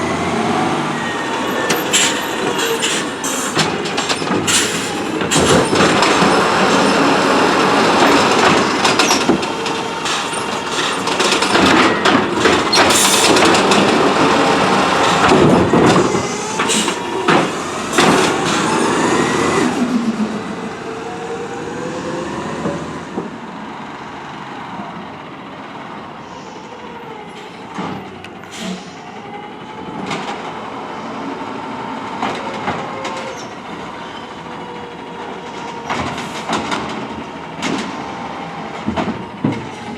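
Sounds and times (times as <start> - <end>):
garbage truck clatter and banging: 0.2 - 20.2, 29.8 - 30.8, 32.0 - 39.9.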